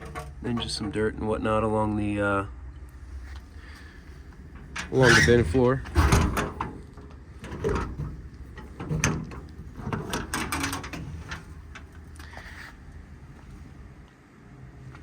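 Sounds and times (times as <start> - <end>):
metal compartment door clunking: 0.0 - 1.0, 3.8 - 12.1.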